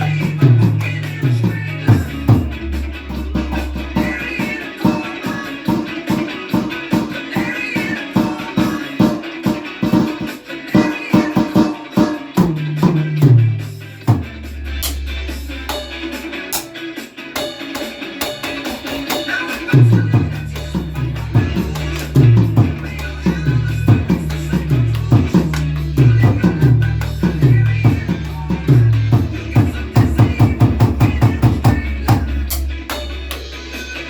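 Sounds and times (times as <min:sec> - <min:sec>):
bass line: 0:00.0 - 0:04.8, 0:12.4 - 0:16.5, 0:19.7 - 0:34.0
drum kit beat: 0:00.0 - 0:34.0
electric guitar: 0:00.0 - 0:34.0.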